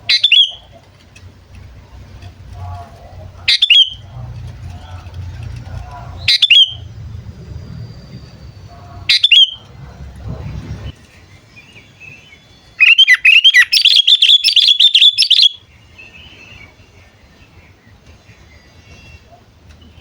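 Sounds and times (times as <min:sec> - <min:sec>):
bulbul calling and chirping: 0:00.0 - 0:00.8, 0:03.3 - 0:04.2, 0:06.1 - 0:09.8, 0:12.8 - 0:16.7.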